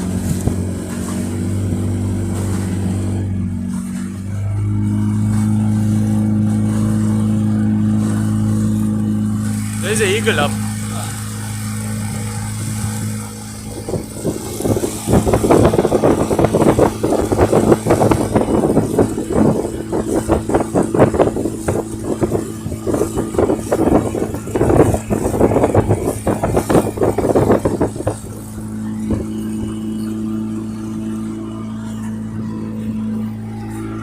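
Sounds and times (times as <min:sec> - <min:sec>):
boat motor running: 0:00.0 - 0:34.0
crackling and rushing noise: 0:00.0 - 0:34.0.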